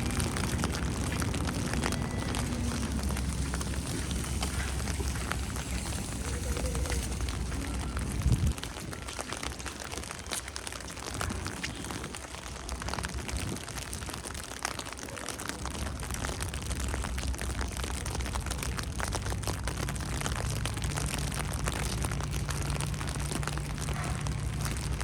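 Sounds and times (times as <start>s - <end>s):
low rumble: 0.0s - 9.1s
patter of falling snow: 0.0s - 25.0s.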